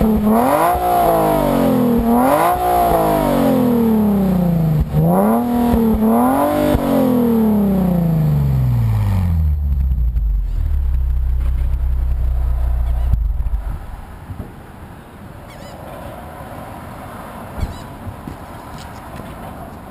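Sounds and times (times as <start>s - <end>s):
car engine revving and idling: 0.0s - 14.2s.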